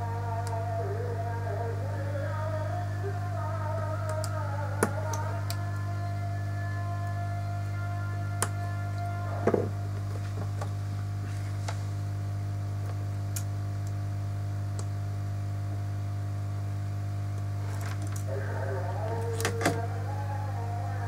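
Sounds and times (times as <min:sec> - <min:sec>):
music: 0:00.0 - 0:09.9
low electrical hum: 0:00.0 - 0:21.0.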